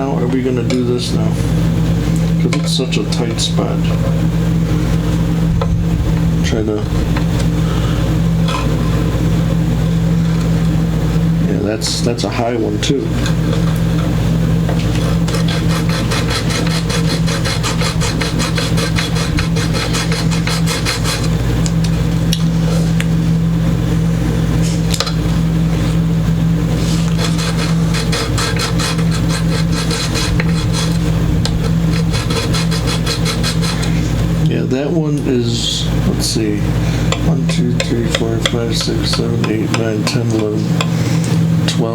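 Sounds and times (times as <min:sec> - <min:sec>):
steady low hum: 0:00.0 - 0:41.9
metal file rasping: 0:15.0 - 0:21.4, 0:26.8 - 0:34.0.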